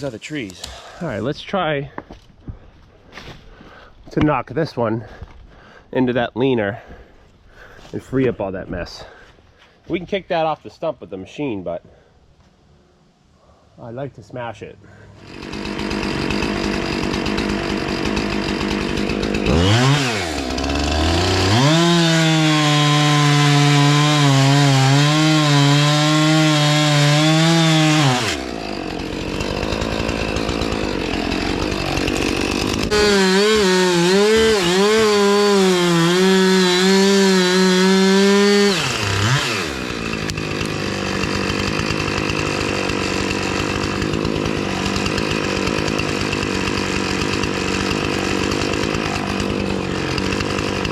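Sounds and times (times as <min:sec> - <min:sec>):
chainsaw cutting wood: 0:00.0 - 0:01.1, 0:15.2 - 0:50.9.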